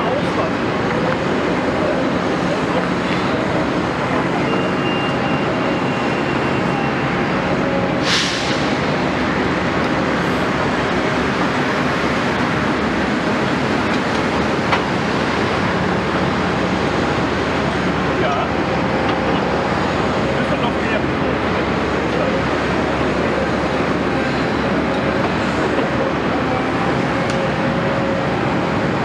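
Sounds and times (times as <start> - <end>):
excavator diesel engine running: 0.0 - 29.0
brief hiss: 8.0 - 8.7.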